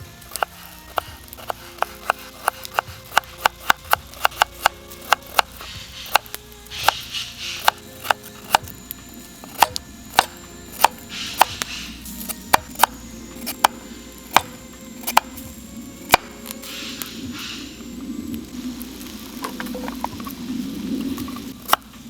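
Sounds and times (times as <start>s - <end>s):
sharp woody chopping knocks: 0.3s - 8.8s, 9.5s - 15.4s.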